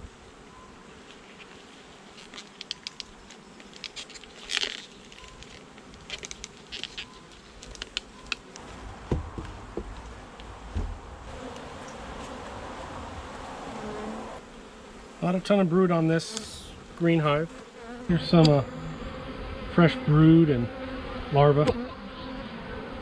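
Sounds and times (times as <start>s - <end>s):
honey bees buzzing: 0.0s - 23.0s
scrape on hive: 0.5s - 8.2s, 11.3s - 12.8s
low thumps: 8.6s - 11.4s.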